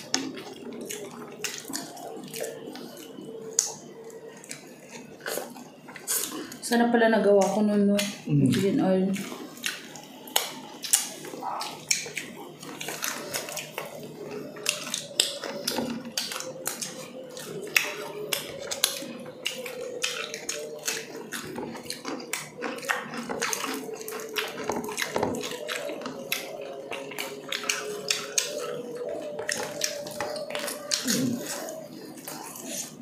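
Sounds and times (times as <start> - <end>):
lip-smacking: 0.0 - 6.6, 7.4 - 33.0
people chewing: 0.0 - 33.0
wet mouth clicks: 7.4 - 33.0.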